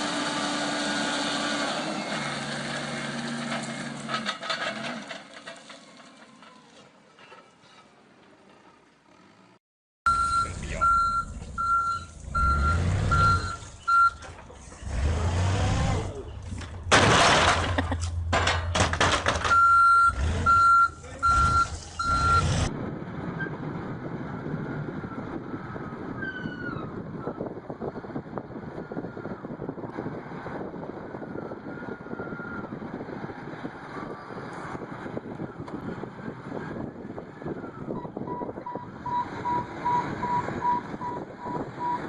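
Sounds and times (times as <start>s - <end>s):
truck reversing alarm beeping: 10.1s - 14.3s, 19.4s - 22.7s, 37.4s - 42.0s
wind noise: 22.7s - 42.0s.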